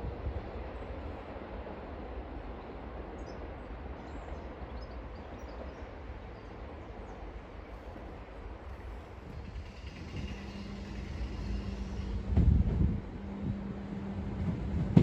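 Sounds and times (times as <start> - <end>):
outdoor rumble and hiss: 6.8 - 15.0.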